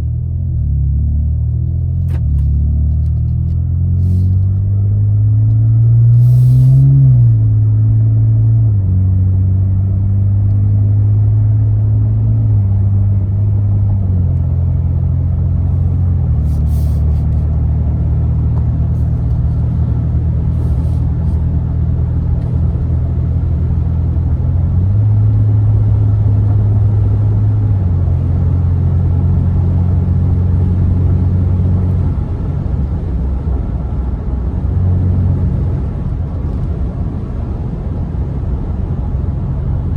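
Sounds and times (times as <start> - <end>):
engine exhaust droning: 2.4 - 39.9.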